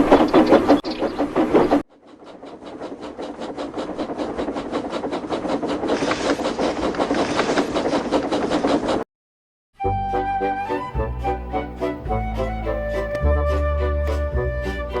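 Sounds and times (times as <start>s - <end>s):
model train wheels clicking: 0.0s - 9.0s.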